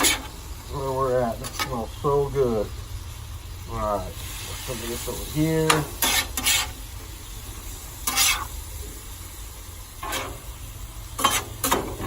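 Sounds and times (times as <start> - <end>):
spatula scraping griddle: 0.0 - 2.7, 4.2 - 9.0, 10.0 - 12.0
meat and peppers sizzling: 0.0 - 12.0.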